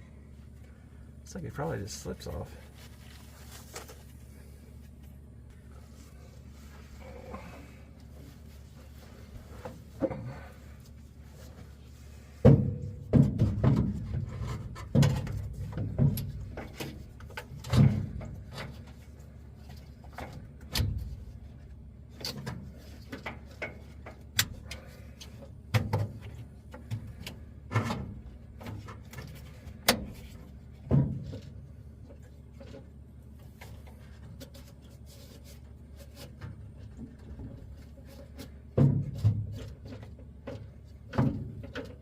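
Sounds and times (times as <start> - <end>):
tools knocking and rattling: 12.4 - 33.0, 36.3 - 42.0.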